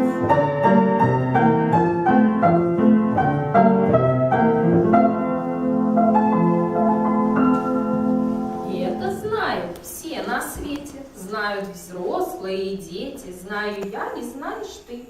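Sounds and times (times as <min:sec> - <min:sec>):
piano playing children's song: 0:00.0 - 0:11.3.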